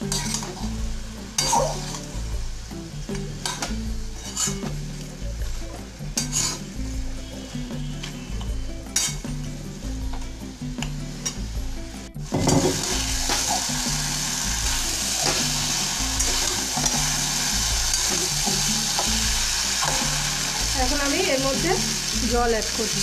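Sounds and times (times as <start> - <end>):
food sizzling: 0.0 - 23.0
spatula scraping metal pan: 3.4 - 4.7, 6.2 - 6.7, 8.9 - 9.2.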